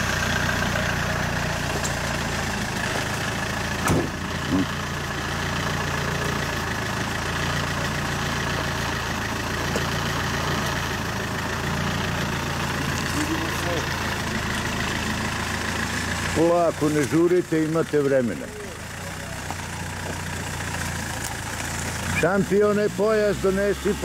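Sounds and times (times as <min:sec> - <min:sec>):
car engine idling: 0:00.0 - 0:24.0
car door slamming: 0:03.8 - 0:04.2.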